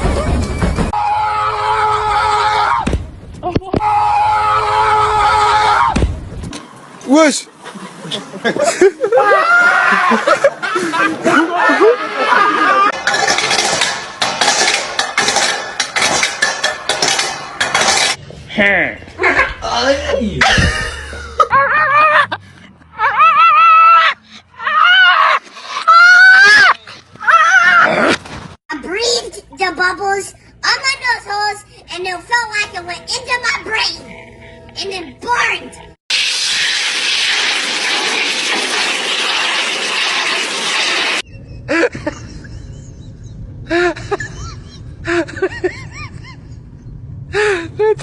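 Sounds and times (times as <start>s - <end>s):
loud steady hiss: 36.1s - 41.2s.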